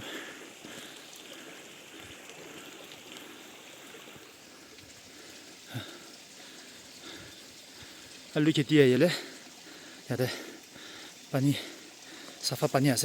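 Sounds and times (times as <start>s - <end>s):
small stream running: 0.0s - 13.0s.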